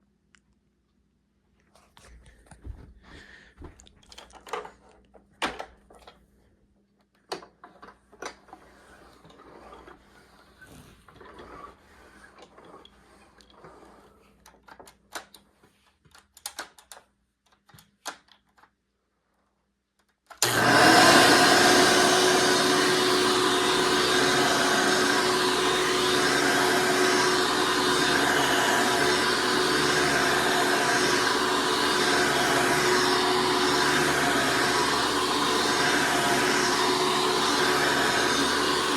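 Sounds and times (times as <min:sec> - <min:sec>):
vacuum cleaner motor humming: 0:20.4 - 0:38.9.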